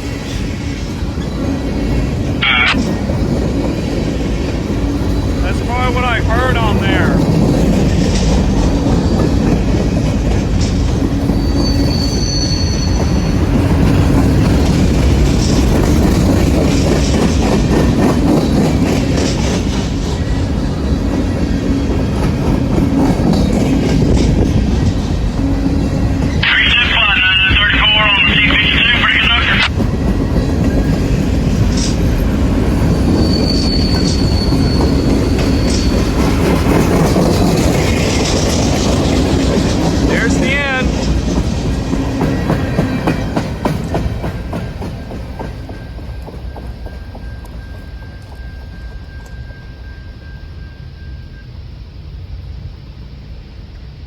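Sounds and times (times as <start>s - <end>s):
freight train rumbling past: 0.0s - 54.0s
high wheel squeal: 11.3s - 13.7s, 32.8s - 36.2s.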